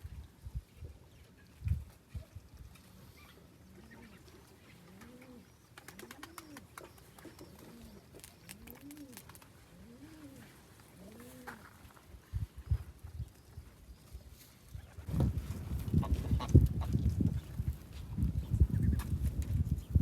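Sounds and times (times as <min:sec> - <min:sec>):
pigeons cooing: 0:03.2 - 0:11.8.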